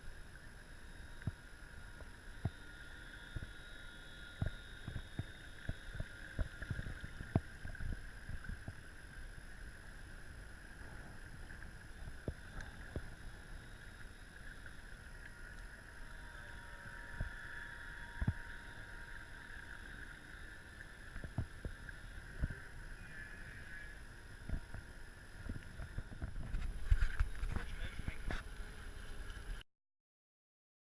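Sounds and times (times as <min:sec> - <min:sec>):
model boat motor whining: 0:13.1 - 0:28.4.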